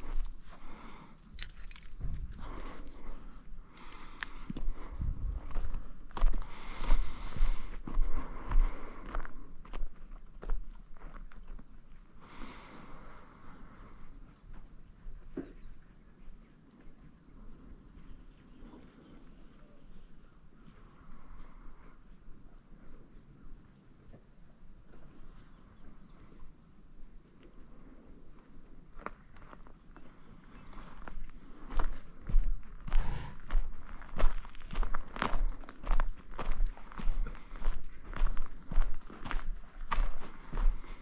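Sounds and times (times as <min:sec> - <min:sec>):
footsteps: 0:00.0 - 0:11.6, 0:30.6 - 0:41.0
insects chirring: 0:00.0 - 0:41.0.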